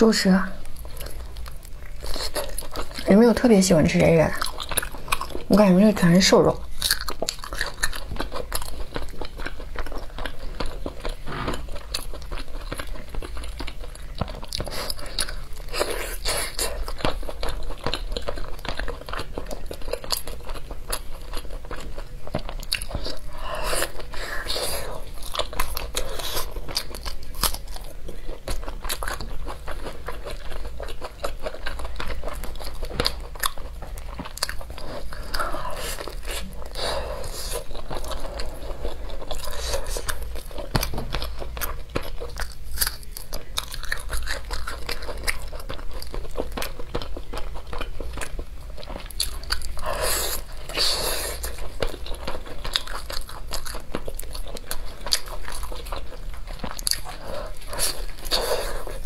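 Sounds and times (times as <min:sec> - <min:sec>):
person chewing wet mouth sounds: 0:00.6 - 0:59.0.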